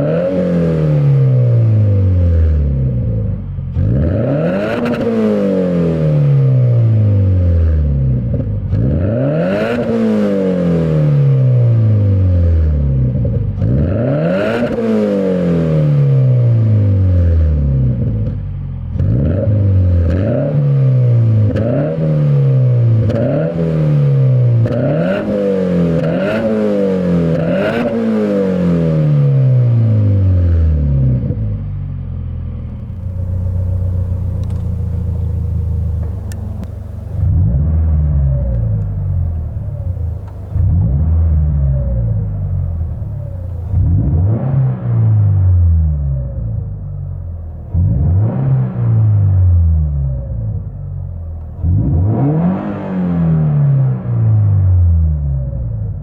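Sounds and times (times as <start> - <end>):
car engine revving: 3.8 - 7.4, 32.6 - 54.6.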